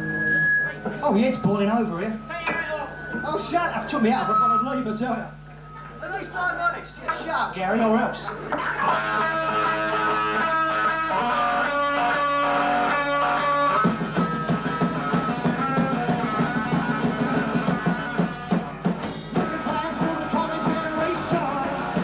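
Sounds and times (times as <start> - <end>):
drums: 8.3 - 22.0
electric guitar chords: 8.4 - 22.0
rock band playing: 8.6 - 22.0.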